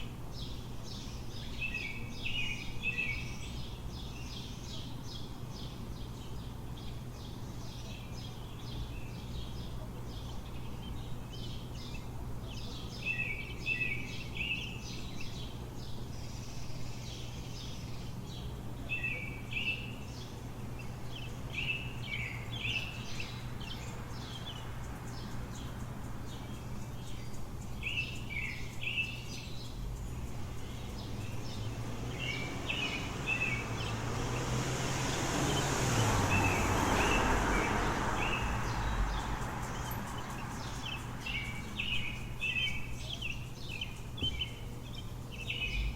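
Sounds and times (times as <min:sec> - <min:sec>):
low city hum: 0:00.0 - 0:45.9
songbirds chirping and singing: 0:00.0 - 0:45.9
vehicle approaching: 0:29.7 - 0:45.9.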